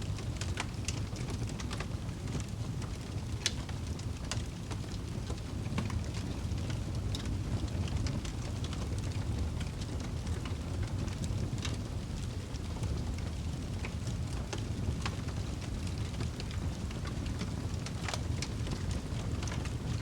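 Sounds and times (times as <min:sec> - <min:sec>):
fire crackling and popping: 0:00.0 - 0:20.0
low rumble of flames: 0:00.0 - 0:20.0.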